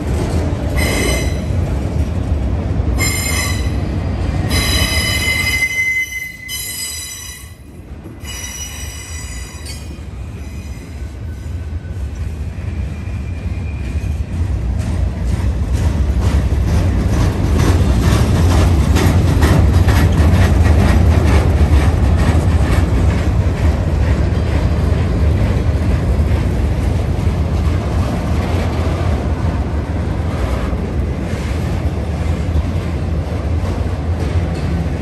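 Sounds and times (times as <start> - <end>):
freight train rumbling past: 0.0 - 35.0
wheels clicking over rail joints: 14.2 - 28.9.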